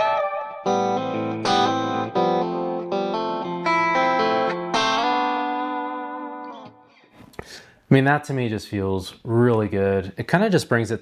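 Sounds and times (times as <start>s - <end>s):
clean electric guitar melody: 0.0s - 7.1s.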